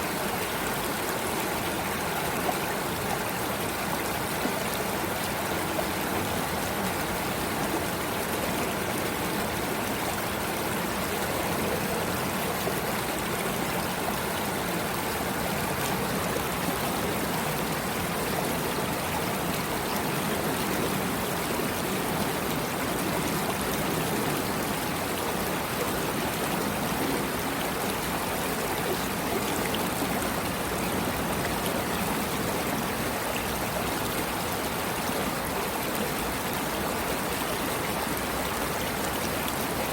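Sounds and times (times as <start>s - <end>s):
water running over rocks: 0.0s - 39.9s.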